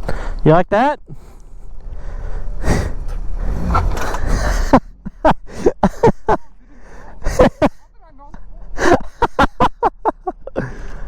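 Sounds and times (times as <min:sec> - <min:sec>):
motorcycle engine: 0:01.2 - 0:08.0.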